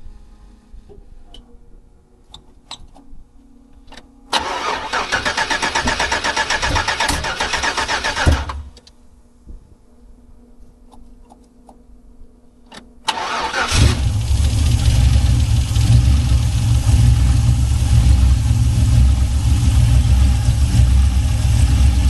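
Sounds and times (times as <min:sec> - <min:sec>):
car engine cranking and idling: 0:04.4 - 0:08.9, 0:13.1 - 0:22.0.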